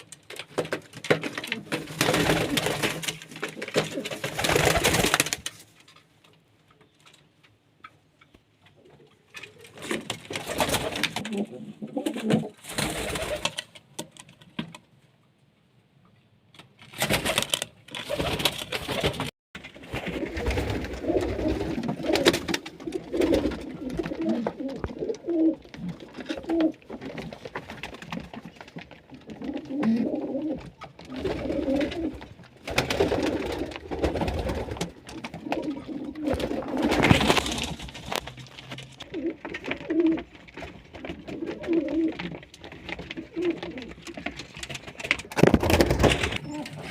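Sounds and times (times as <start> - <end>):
pigeons cooing: 8.8 - 13.5, 20.0 - 27.3, 29.1 - 37.6, 39.0 - 40.3, 40.9 - 44.3, 46.3 - 46.9.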